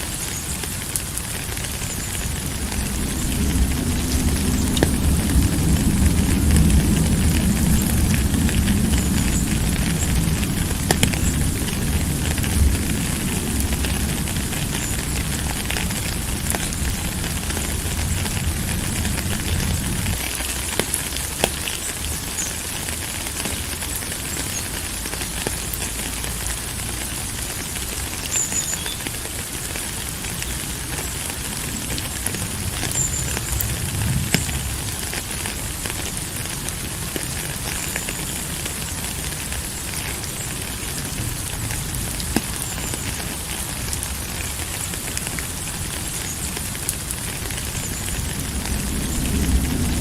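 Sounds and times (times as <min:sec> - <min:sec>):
steady rain falling: 0:00.0 - 0:50.0
low rumble: 0:02.3 - 0:20.2.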